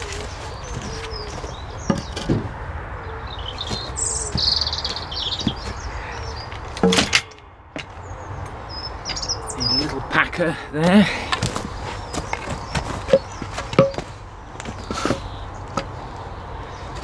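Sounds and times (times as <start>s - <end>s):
low outdoor background noise: 0.0s - 17.0s
small birds chirping: 0.0s - 17.0s
sharp knocks and thuds: 0.6s - 2.6s, 3.6s - 5.8s, 6.6s - 8.0s, 11.3s - 15.9s.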